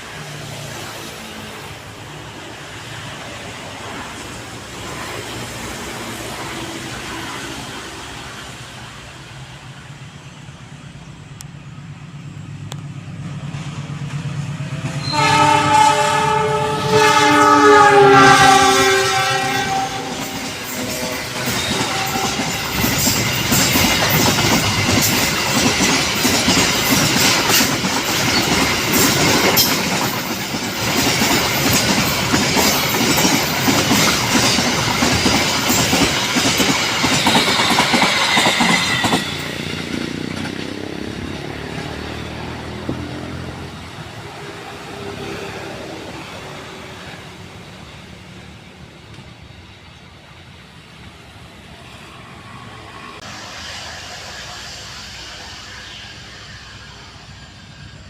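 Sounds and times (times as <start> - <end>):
diesel locomotive engine hum: 0.0 - 58.0
train air horn: 15.0 - 23.2
train wheels clattering: 17.0 - 44.2.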